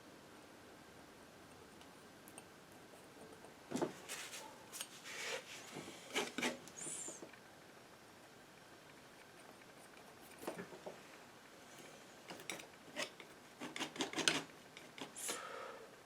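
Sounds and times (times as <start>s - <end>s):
painting knife scraping and tapping: 6.1s - 6.7s, 12.3s - 15.2s.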